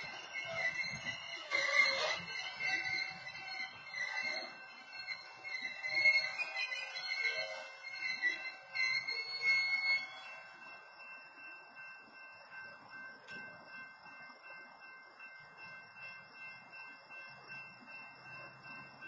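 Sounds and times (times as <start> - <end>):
train wheels and brakes squealing: 0.0 - 14.6
railroad crossing bell ringing: 0.0 - 19.0.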